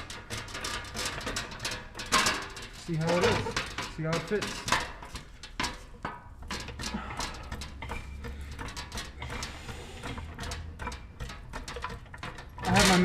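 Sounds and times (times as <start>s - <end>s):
metal tray clicking and rattling: 0.0s - 13.0s
heavy breathing through a mask: 6.8s - 10.6s.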